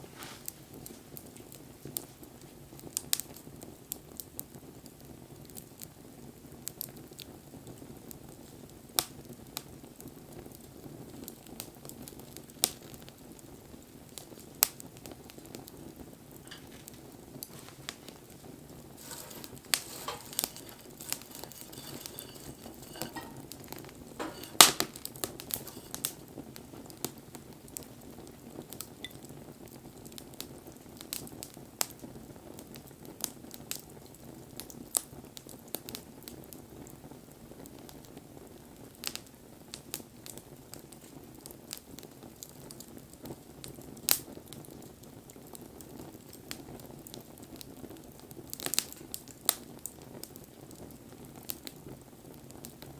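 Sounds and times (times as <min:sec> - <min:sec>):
wood fire crackling: 0:00.0 - 0:52.9
fire popping and snapping: 0:00.1 - 0:05.6, 0:06.6 - 0:36.6, 0:37.6 - 0:52.9
hiss of burning: 0:16.3 - 0:27.4.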